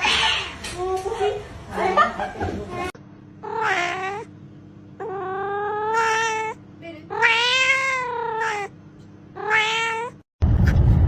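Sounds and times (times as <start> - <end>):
cat yowling: 3.4 - 4.3, 5.0 - 8.7, 9.4 - 10.2.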